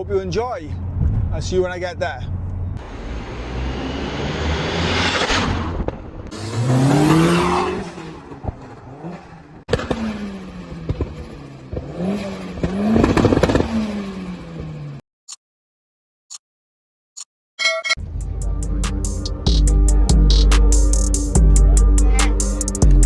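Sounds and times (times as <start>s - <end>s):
car engine accelerating: 2.3s - 15.0s.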